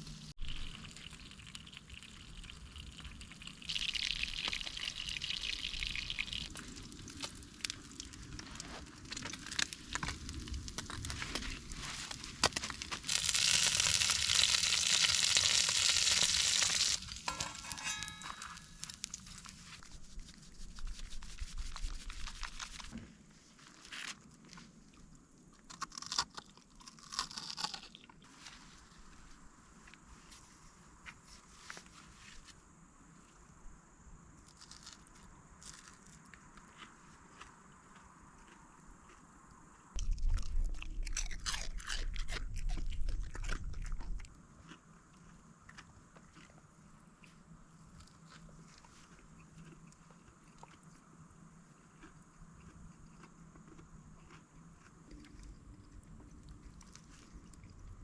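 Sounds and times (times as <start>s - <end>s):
food sizzling in a pan: 13.1s - 19.1s.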